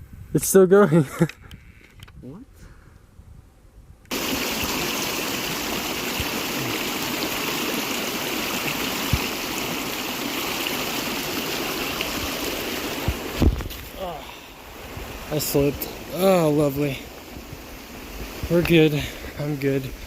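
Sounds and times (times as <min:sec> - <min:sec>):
stream water rushing: 0:04.1 - 0:20.0.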